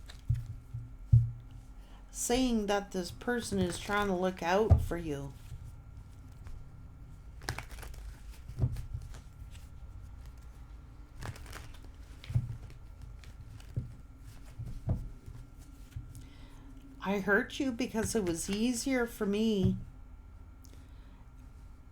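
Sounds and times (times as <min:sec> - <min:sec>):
cards knocking and rustling on table: 0:00.0 - 0:01.6, 0:03.4 - 0:05.7, 0:07.4 - 0:10.6, 0:11.2 - 0:16.2
low room hum: 0:00.0 - 0:21.9.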